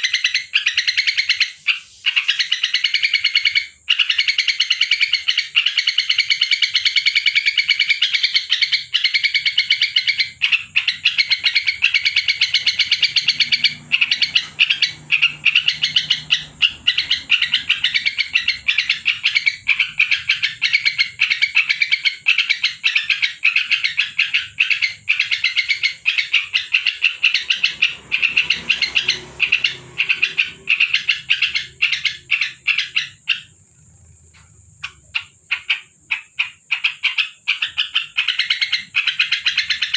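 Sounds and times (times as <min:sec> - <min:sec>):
bird singing rapid high notes: 0:00.0 - 0:06.8, 0:07.7 - 0:33.6.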